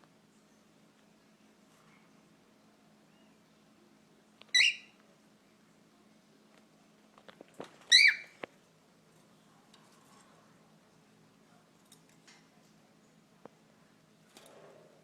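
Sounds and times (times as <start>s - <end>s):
pet bird chirping: 4.5s - 5.0s, 7.9s - 8.3s.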